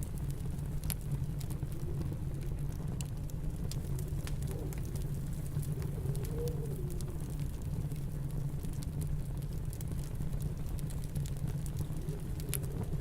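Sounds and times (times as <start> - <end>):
snowstorm wind rumble: 0.0 - 13.0
wood fire crackling: 0.0 - 13.0
wind whistling: 3.8 - 7.6.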